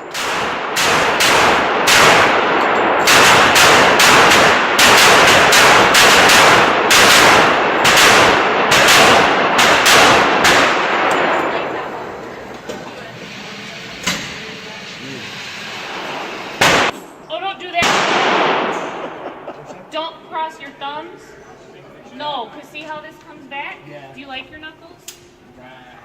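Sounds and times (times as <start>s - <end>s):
rapid gunshots with heavy echo: 0.0s - 11.8s, 15.7s - 17.0s, 17.8s - 19.5s.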